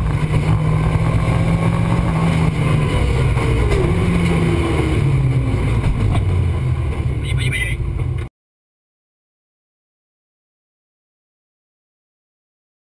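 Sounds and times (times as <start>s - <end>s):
car engine driving: 0.0s - 8.3s.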